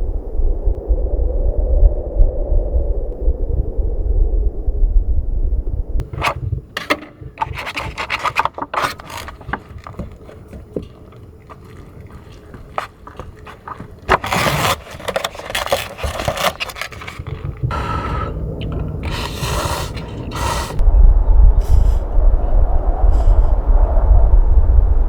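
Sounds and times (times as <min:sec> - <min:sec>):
low rumble: 0:00.0 - 0:06.1, 0:16.3 - 0:25.0
clicks and knocks: 0:06.0 - 0:17.7
scraping and rubbing: 0:06.0 - 0:20.8.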